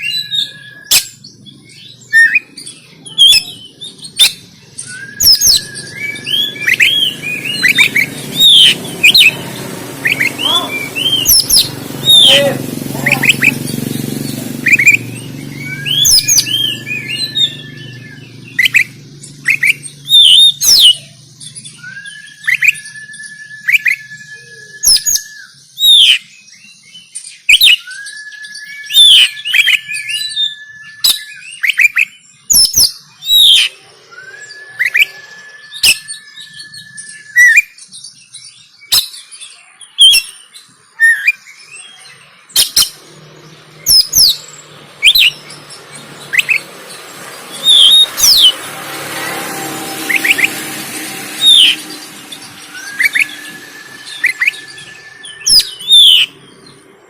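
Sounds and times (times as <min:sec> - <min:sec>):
long level bird whistle: 0:00.0 - 0:12.5, 0:14.6 - 0:57.0
bird song whistles and chirps: 0:00.0 - 0:57.0.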